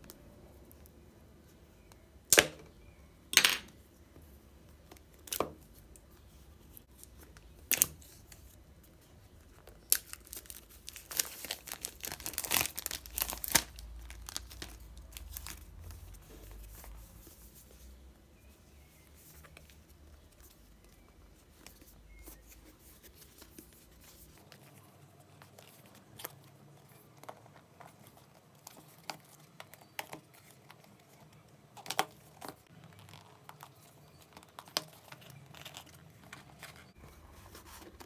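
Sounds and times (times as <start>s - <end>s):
packaging tearing and crinkling: 9.8s - 16.2s.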